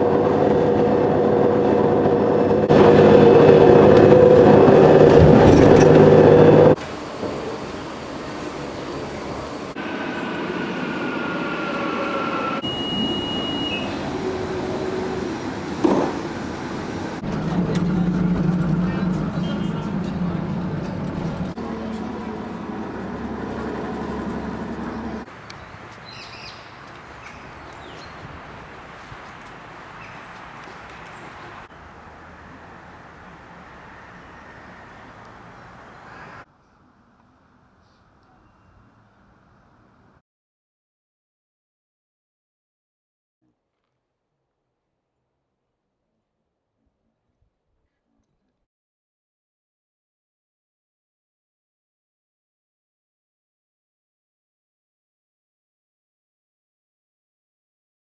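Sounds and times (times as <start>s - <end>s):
vehicle riding rumble: 0.0s - 36.5s
dull hum: 12.7s - 25.3s.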